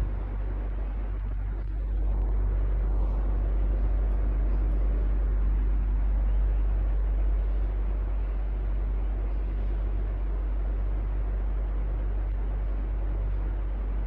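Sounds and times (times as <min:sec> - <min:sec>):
fan motor hum: 0:00.0 - 0:14.0
fan whoosh of air: 0:00.0 - 0:14.0.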